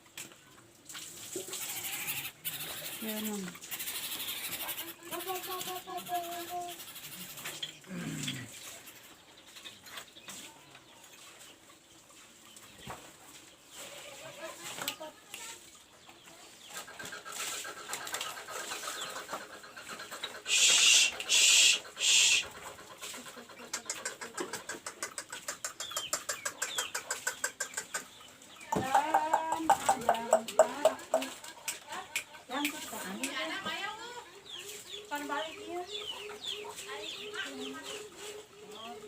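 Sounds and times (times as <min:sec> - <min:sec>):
bird clucking: 0:02.1 - 0:07.8, 0:16.6 - 0:33.8, 0:34.4 - 0:39.0
bird hissing bursts: 0:20.5 - 0:22.5
loud pitched bird call: 0:20.5 - 0:22.5.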